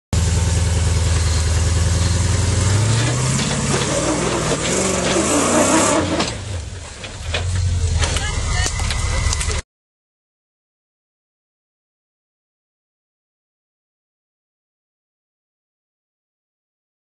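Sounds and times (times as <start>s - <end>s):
suv engine revving under load: 0.2s - 9.6s.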